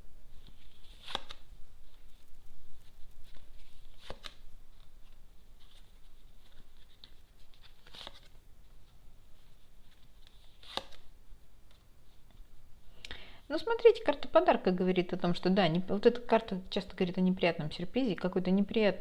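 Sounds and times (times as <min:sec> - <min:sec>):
playing cards rustling: 0:00.3 - 0:12.5.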